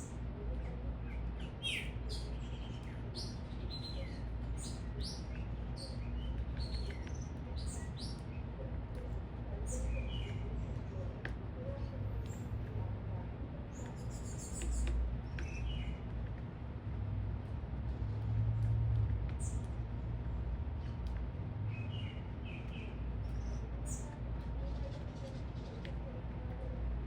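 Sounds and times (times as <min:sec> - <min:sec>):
small birds chirping: 0:00.0 - 0:16.8, 0:19.1 - 0:27.0
steady low rumble: 0:00.0 - 0:27.0.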